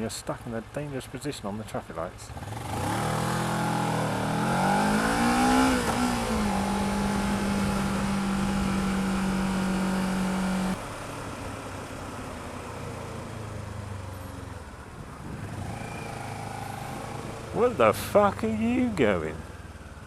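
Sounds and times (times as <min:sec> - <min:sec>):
motorcycle engine accelerating: 0:02.3 - 0:10.8, 0:13.3 - 0:20.0.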